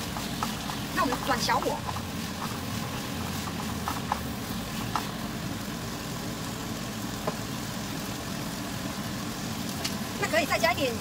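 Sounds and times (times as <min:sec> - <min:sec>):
stove rumbling: 0:00.0 - 0:11.0
spatula clicking against pan: 0:00.1 - 0:02.6.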